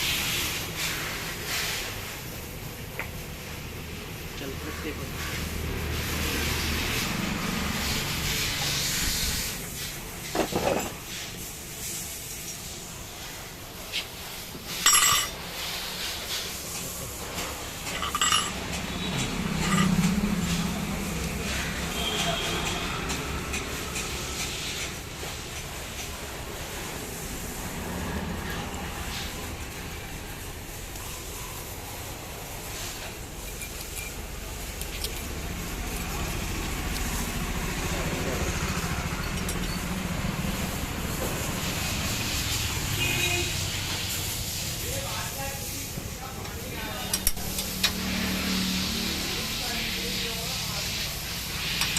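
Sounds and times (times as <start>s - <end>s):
metal tools clinking: 14.7s - 15.5s, 17.8s - 20.2s, 33.4s - 36.2s, 39.1s - 40.0s.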